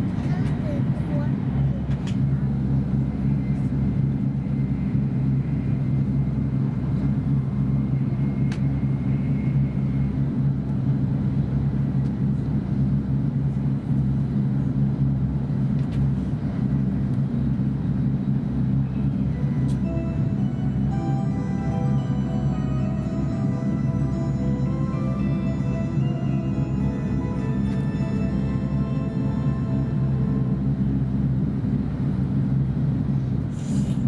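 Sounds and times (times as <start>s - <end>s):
train rumbling in passenger cabin: 0.0s - 34.0s.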